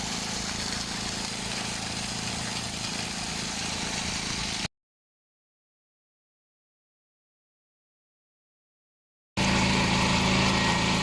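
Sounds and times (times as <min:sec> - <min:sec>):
motor running with hum and hiss: 0:00.0 - 0:04.7, 0:09.4 - 0:11.0.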